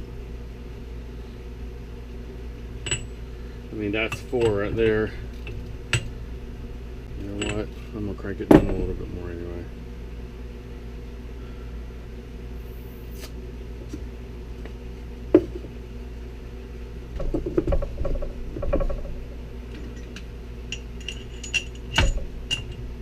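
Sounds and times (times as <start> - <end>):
steady background hum: 0.0 - 23.0
metal tools clanking: 2.8 - 3.2, 4.0 - 6.1, 7.2 - 9.0, 19.7 - 22.8.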